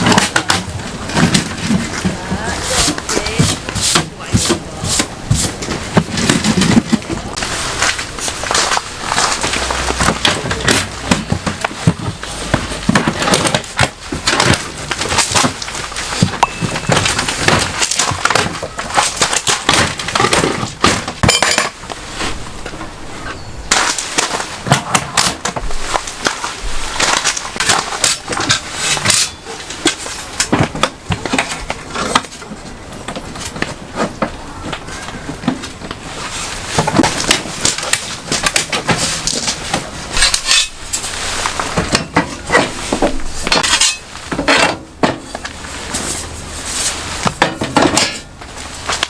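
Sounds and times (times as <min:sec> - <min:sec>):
knocking and clattering: 0:08.5 - 0:21.8.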